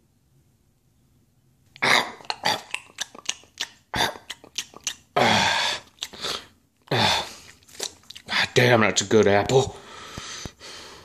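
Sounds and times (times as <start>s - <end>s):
chewing with crunches: 2.1s - 5.2s, 5.8s - 6.4s, 7.3s - 8.4s
person biting into apple: 7.3s - 8.3s.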